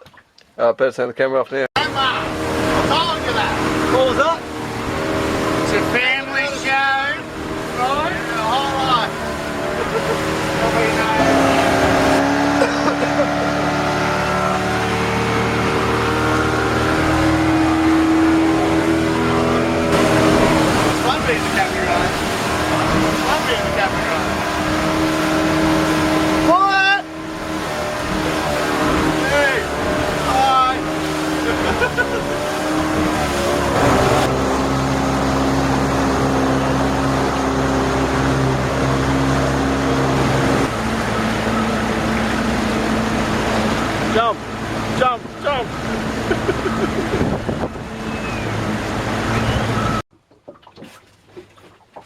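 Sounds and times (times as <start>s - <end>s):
boat engine humming: 1.8s - 52.0s
water rushing past: 1.8s - 52.0s
wind rushing: 47.1s - 49.0s.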